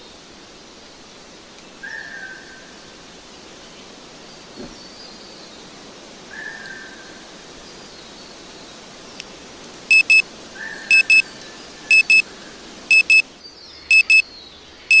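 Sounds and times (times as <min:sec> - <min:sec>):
forest ambience hiss: 0:00.0 - 0:14.8
digital alarm double beeps: 0:09.9 - 0:10.2, 0:10.9 - 0:11.2, 0:11.9 - 0:12.2, 0:12.9 - 0:13.2, 0:13.9 - 0:14.2.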